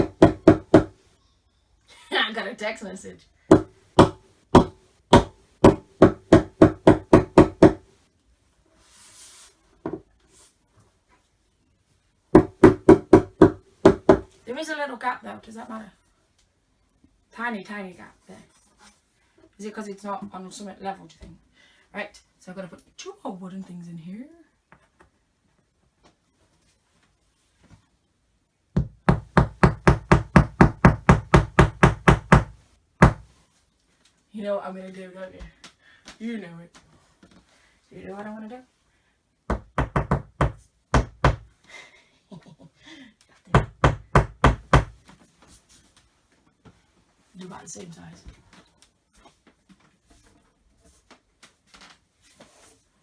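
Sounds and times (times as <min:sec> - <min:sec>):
mallet knocking wooden dowels: 0:00.0 - 0:00.9, 0:03.5 - 0:07.8
soft rustle: 0:08.0 - 0:12.1, 0:17.8 - 0:19.6, 0:25.1 - 0:28.2, 0:45.0 - 0:53.0.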